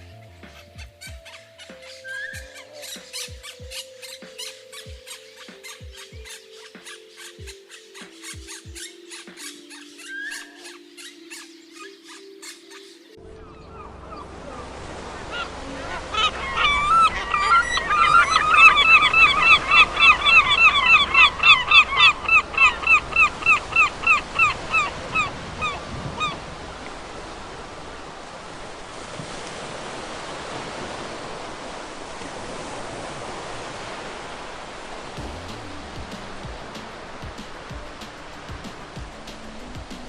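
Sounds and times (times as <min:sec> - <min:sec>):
geese honking: 0:13.3 - 0:26.4
steady rushing noise: 0:34.1 - 0:40.0.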